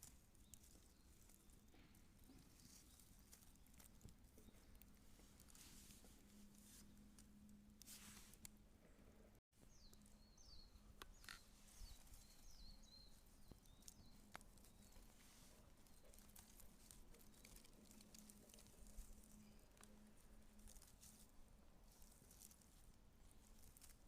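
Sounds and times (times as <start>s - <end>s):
bird chirping: 0.4s - 7.1s, 9.6s - 20.0s.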